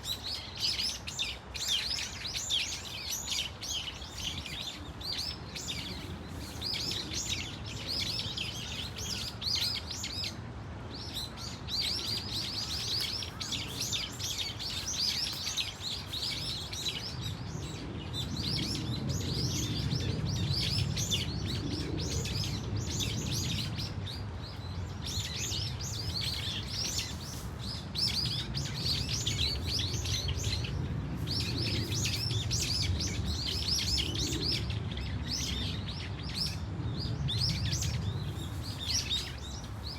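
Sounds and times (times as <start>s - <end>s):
birds calling shrilly: 11.0s - 17.2s.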